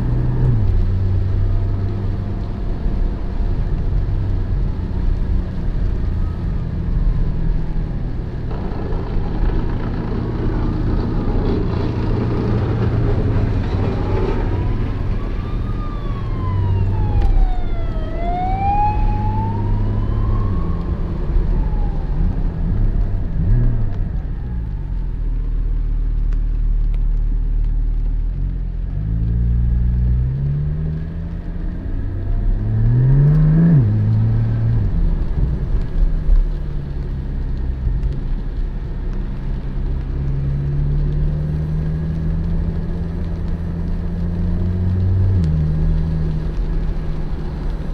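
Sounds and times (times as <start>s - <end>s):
car engine running: 8.0s - 18.2s
wailing siren-like tone: 10.8s - 25.2s
tyres hissing on wet road: 24.5s - 47.9s.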